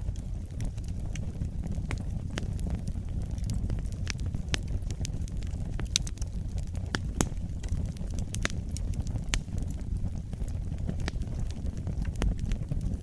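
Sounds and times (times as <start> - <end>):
fire crackling and popping: 0.0 - 13.0
wood fire rumbling: 0.0 - 13.0.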